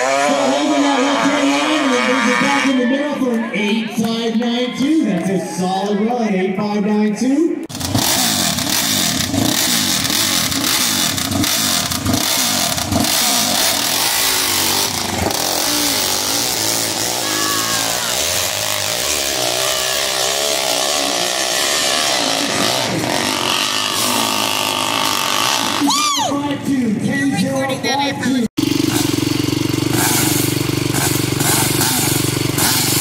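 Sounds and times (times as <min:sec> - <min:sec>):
dirt bike engine revving: 0:00.0 - 0:03.1, 0:07.6 - 0:26.1, 0:28.6 - 0:33.0.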